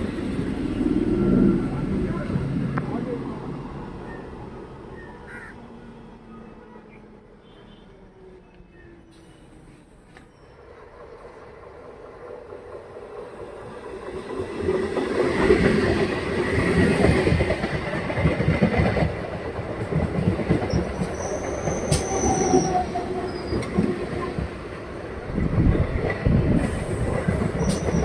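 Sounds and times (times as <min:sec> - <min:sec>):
train rumbling past: 0:00.0 - 0:28.0
high squeal: 0:21.1 - 0:23.7.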